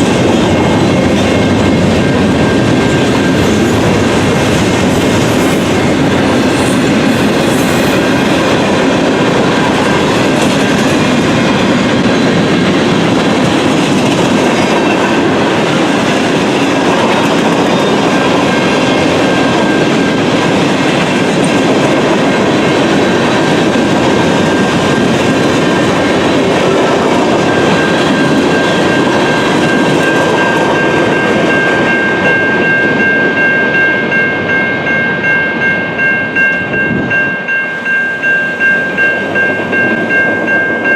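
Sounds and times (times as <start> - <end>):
freight train wheels rumbling: 0.0 - 40.9
steady high-pitched tone: 25.9 - 40.9.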